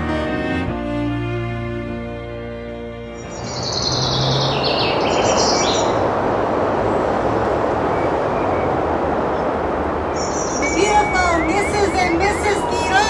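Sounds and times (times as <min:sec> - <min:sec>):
soft string music: 0:00.0 - 0:05.9, 0:10.6 - 0:13.0
steady rushing outdoor noise: 0:00.0 - 0:13.0
birds chirping: 0:02.7 - 0:06.2, 0:06.8 - 0:13.0.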